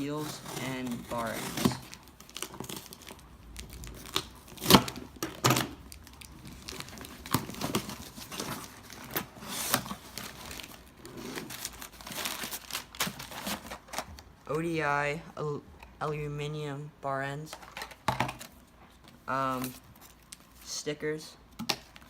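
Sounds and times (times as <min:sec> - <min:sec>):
packaging being torn and crinkled: 0:00.0 - 0:14.3.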